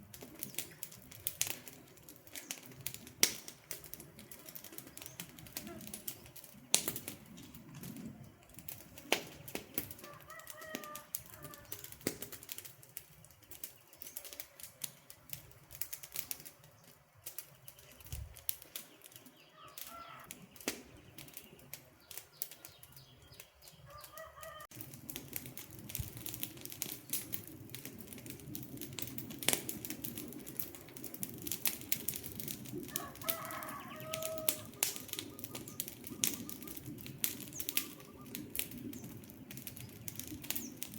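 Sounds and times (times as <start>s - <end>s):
low rush of flames: 0.0s - 40.9s
wood fire crackling and popping: 0.0s - 40.9s
short bird calls: 19.4s - 24.6s, 37.5s - 38.5s.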